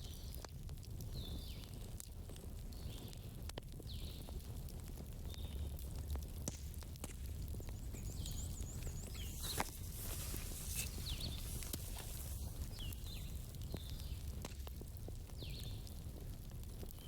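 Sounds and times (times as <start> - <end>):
campfire crackling and popping: 0.0 - 17.0
high chirping calls: 7.6 - 13.4.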